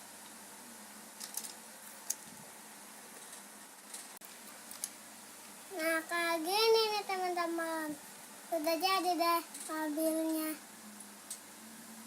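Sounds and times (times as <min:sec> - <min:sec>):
steady low hiss: 0:00.0 - 0:12.0
plastic toy parts clicking: 0:01.2 - 0:02.2.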